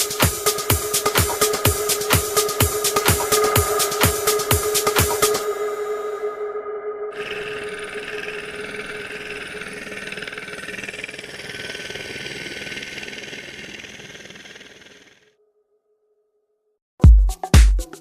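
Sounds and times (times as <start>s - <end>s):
helicopter engine and rotor: 7.2s - 15.3s.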